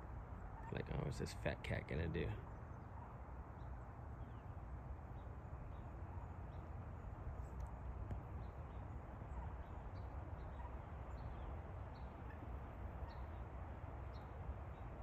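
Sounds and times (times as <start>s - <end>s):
faint outdoor rumble: 0.0s - 15.0s.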